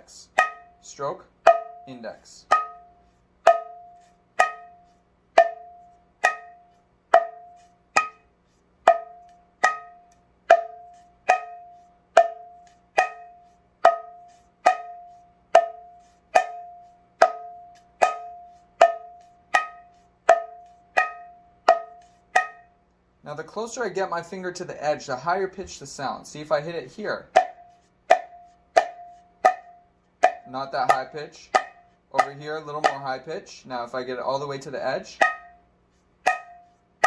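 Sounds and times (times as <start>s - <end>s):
hand drum strikes: 0.4s - 0.8s, 1.4s - 1.9s, 2.5s - 22.8s, 27.3s - 33.1s, 35.2s - 35.6s, 36.3s - 36.8s.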